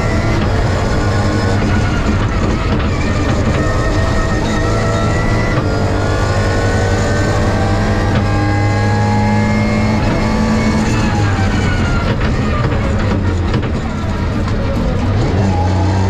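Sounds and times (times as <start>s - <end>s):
rally car engine at full throttle: 0.0s - 16.0s.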